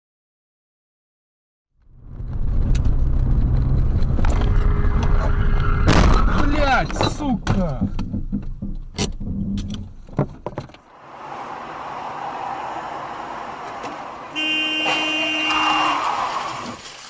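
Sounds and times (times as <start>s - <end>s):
road noise: 1.8s - 7.8s, 9.1s - 17.0s
car horn blast: 13.5s - 16.1s.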